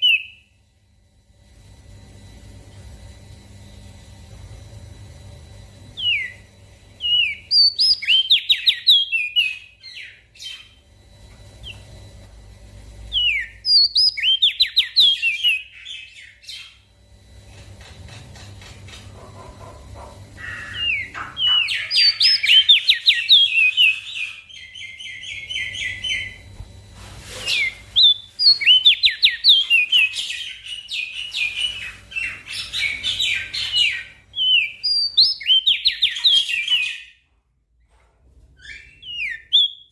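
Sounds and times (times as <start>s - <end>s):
faint low hum: 0.0s - 39.9s
bird chattering song: 7.0s - 10.9s, 13.1s - 16.8s, 19.2s - 26.4s, 27.5s - 37.2s.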